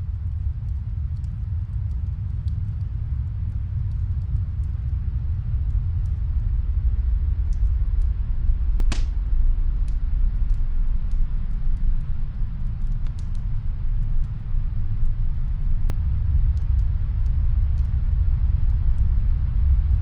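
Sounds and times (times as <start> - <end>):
snowstorm wind rumble: 0.0 - 20.0
fireplace crackling: 8.6 - 16.0
loud crackle pop: 8.8 - 9.3.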